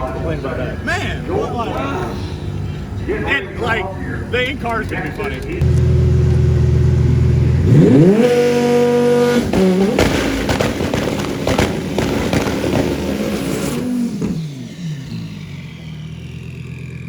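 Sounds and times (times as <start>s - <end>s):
race car engine revving: 5.3s - 17.0s.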